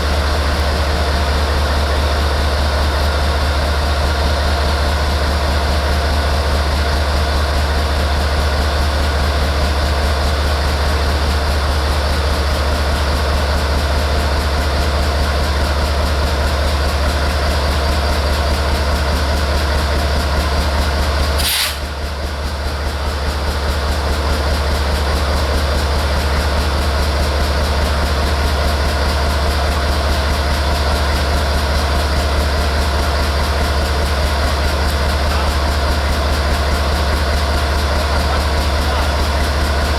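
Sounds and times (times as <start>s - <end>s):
locomotive engine idling: 0.0s - 39.9s
sharp click: 21.4s - 21.9s.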